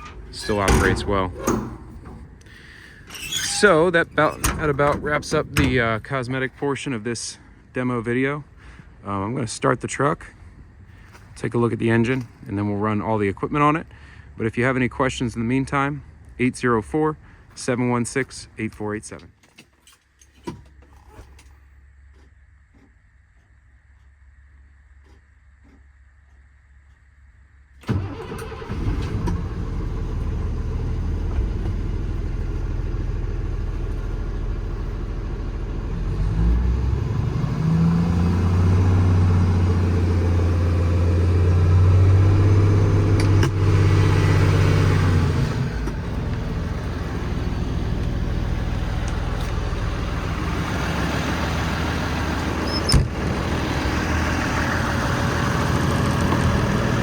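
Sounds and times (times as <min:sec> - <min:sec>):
diesel engine starting and idling: 0:00.0 - 0:07.5, 0:27.8 - 0:57.0.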